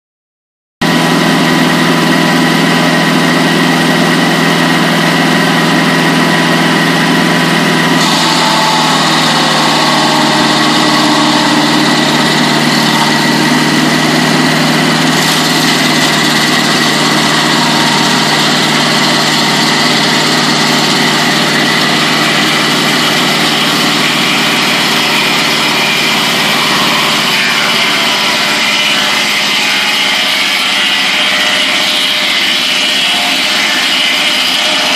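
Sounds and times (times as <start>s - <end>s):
sawmill engine drone: 0.8s - 34.9s
saw blade hiss cutting wood: 7.7s - 34.9s.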